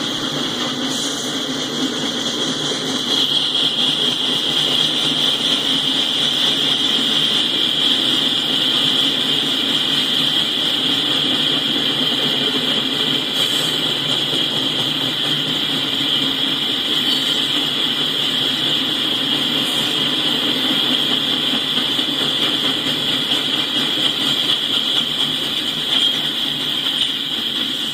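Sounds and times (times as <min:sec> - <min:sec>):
freight train rolling past: 0:00.0 - 0:27.9.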